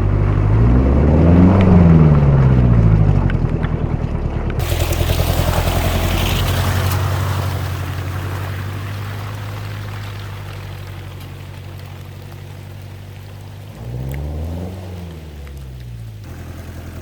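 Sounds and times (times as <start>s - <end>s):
diesel engine running: 0.0s - 17.0s
water splashing: 4.6s - 17.0s.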